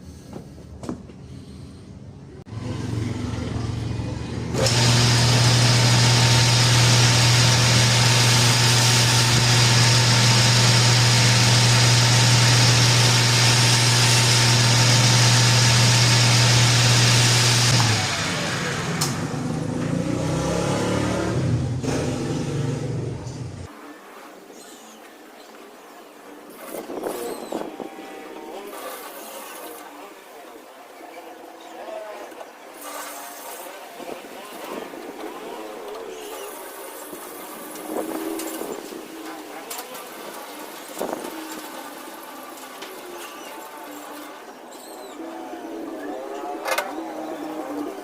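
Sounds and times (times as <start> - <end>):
power tool motor running: 4.5 - 22.0, 36.3 - 44.8.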